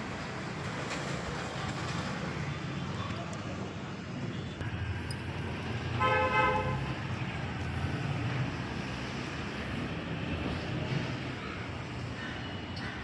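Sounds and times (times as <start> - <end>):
road traffic hum: 0.0 - 13.0
vehicle horn honk: 6.0 - 6.8.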